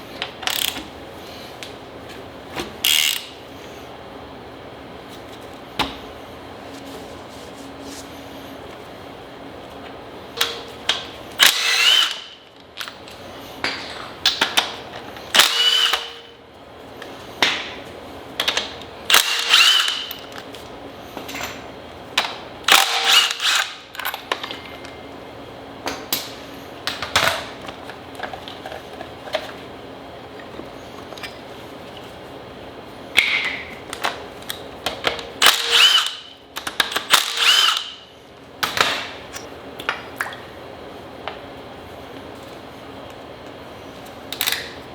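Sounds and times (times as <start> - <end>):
clicks and knocks of tools: 10.4 - 14.8, 22.2 - 25.0, 33.2 - 37.9
cordless power tool whining: 11.4 - 12.4, 15.4 - 16.2, 19.1 - 20.1, 22.7 - 23.7, 35.4 - 36.2, 37.1 - 37.9.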